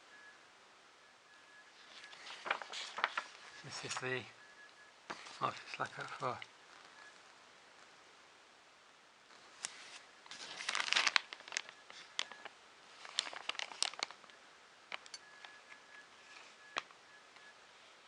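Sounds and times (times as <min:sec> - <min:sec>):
packaging crinkling: 0:01.8 - 0:04.1, 0:05.1 - 0:07.1, 0:09.6 - 0:16.9.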